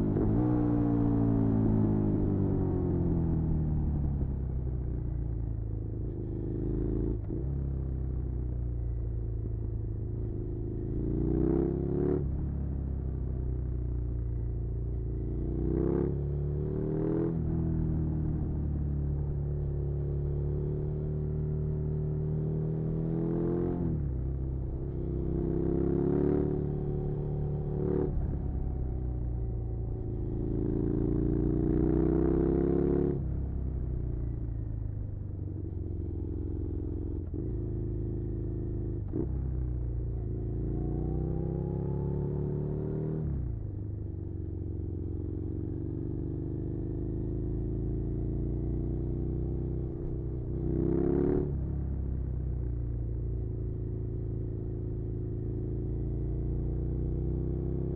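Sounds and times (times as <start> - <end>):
motorcycle engine revving: 15.4 - 35.0, 35.6 - 52.0.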